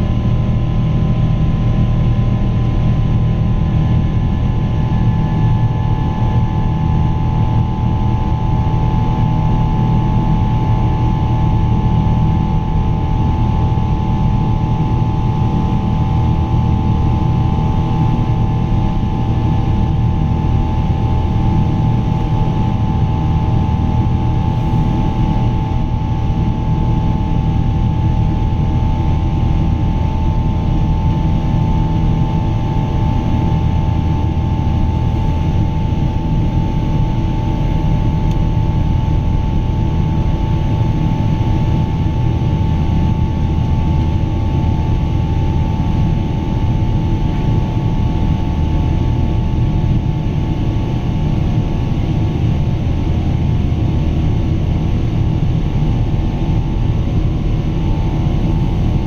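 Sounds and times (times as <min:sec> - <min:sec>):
jet engines droning: 0:00.0 - 0:59.0
steady fan tone: 0:00.0 - 0:59.0.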